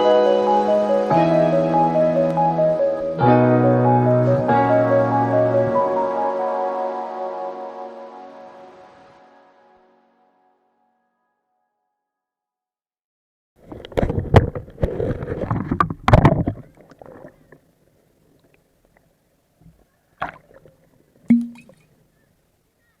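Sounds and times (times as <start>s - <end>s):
water splashing and sloshing: 13.6s - 22.0s.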